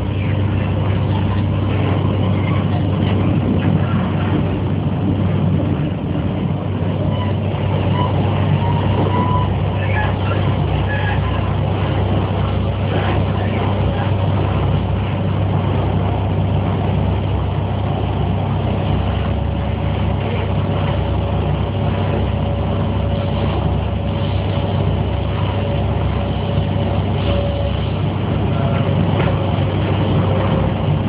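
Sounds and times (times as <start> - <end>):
train cabin rumble and hum: 0.0 - 31.0.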